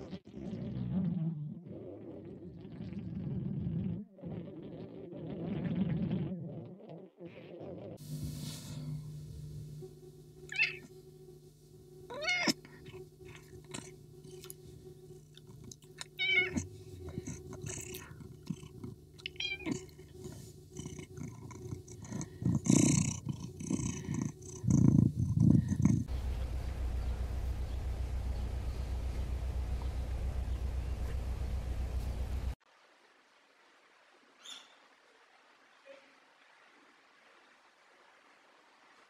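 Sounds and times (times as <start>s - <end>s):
steady low hum: 8.0s - 32.6s
kitten meowing: 10.5s - 10.9s, 12.1s - 14.5s, 16.0s - 18.0s, 19.2s - 20.0s.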